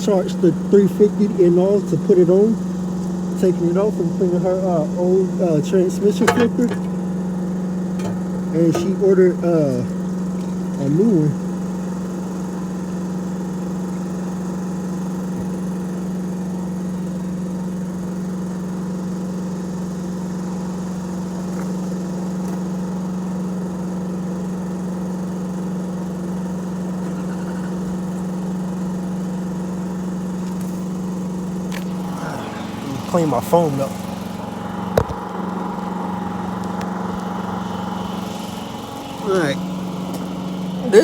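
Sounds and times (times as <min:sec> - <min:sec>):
machine humming: 0:00.0 - 0:17.1, 0:26.3 - 0:41.0.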